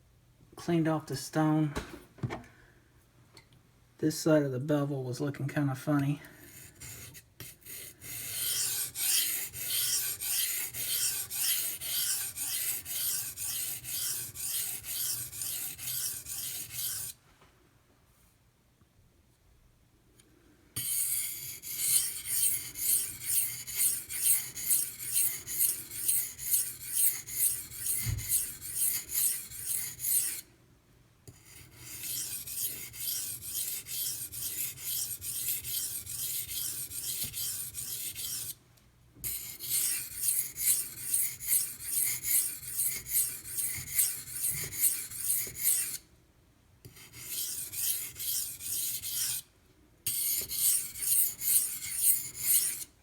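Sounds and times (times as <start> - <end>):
knife scraping on sharpening stone: 6.4 - 17.2, 20.8 - 30.4, 31.3 - 38.6, 39.2 - 46.0, 46.9 - 49.4, 50.1 - 52.9.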